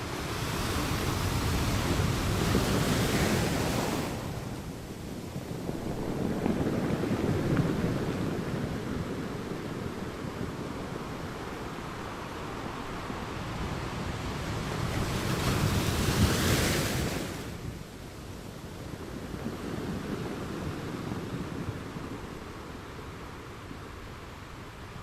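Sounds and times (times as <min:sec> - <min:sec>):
ocean surf washing: 0:00.0 - 0:25.0.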